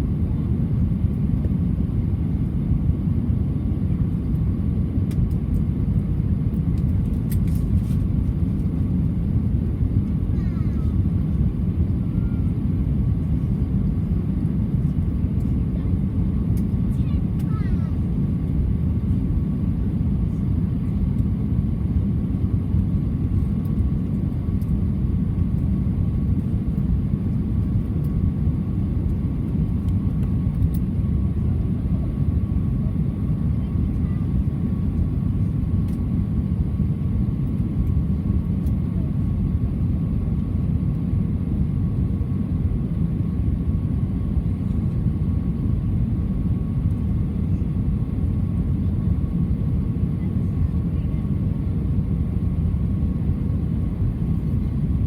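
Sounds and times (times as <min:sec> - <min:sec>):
airflow and jet engines rushing: 0:00.0 - 0:55.0.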